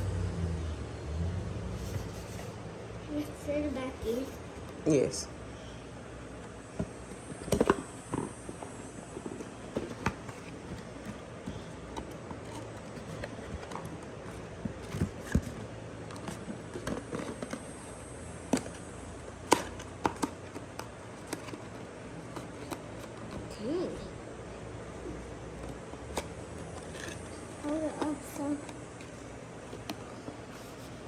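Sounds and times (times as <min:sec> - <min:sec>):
candle packaging handled: 0:07.2 - 0:17.9, 0:25.5 - 0:31.0.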